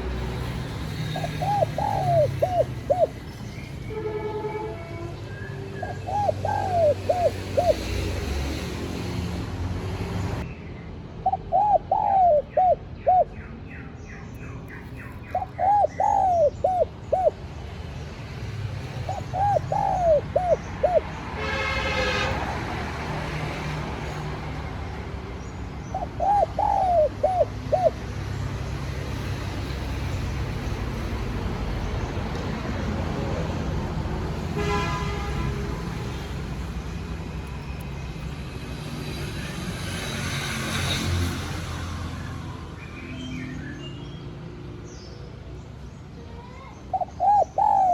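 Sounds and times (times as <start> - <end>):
dove cooing: 0.9 - 3.3, 5.8 - 8.3, 11.2 - 13.4, 15.2 - 17.4, 19.0 - 21.1, 25.8 - 28.1, 46.9 - 47.9.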